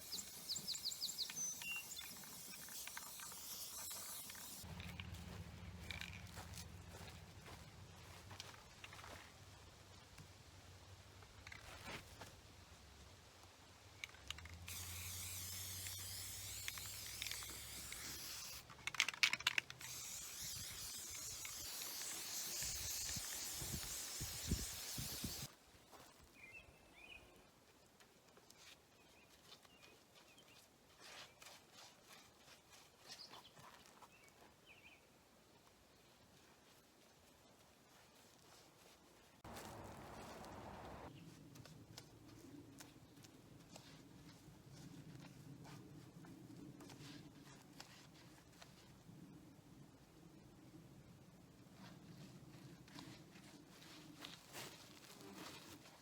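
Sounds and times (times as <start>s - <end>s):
spray paint can hissing: 0.0s - 5.0s, 14.4s - 25.5s, 39.5s - 41.1s.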